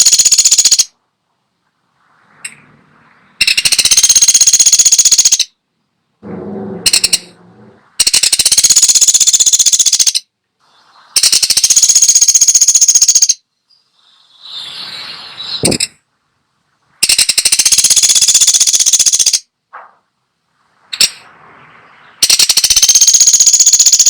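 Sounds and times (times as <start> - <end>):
woodpecker rattling trills: 0.0 - 0.9, 3.4 - 5.5, 6.3 - 7.4, 8.0 - 10.3, 11.2 - 13.4, 17.0 - 19.4, 22.0 - 24.0.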